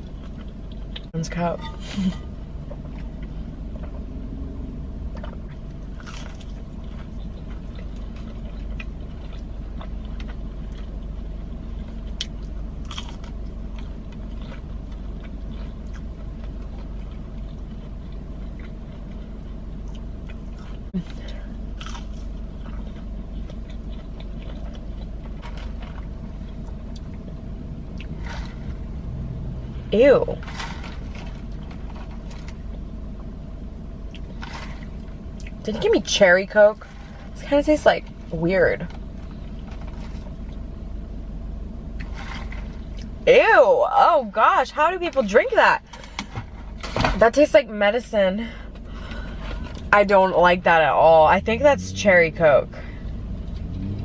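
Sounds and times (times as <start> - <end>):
low background hum: 0.0 - 54.0.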